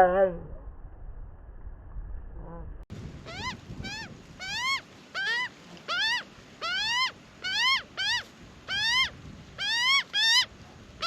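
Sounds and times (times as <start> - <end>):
young magpie begging calls: 3.2 - 10.5.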